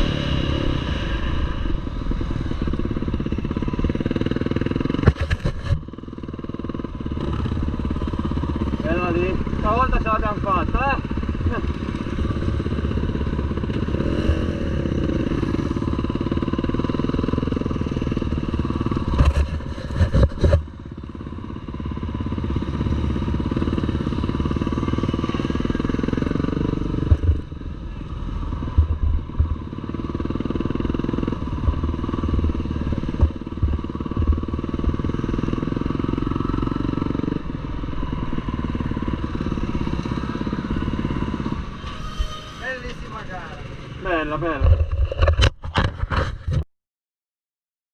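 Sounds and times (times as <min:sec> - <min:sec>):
motorcycle engine running: 0:00.0 - 0:46.5
sharp knocks and rattles: 0:04.7 - 0:06.0, 0:30.4 - 0:35.2.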